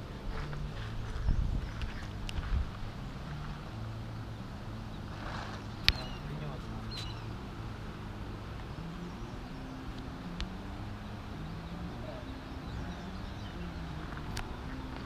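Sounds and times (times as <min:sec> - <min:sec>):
low hum: 0:00.0 - 0:15.0
outdoor background noise: 0:00.0 - 0:15.0
faint bird chirps: 0:04.9 - 0:07.4, 0:08.8 - 0:15.0.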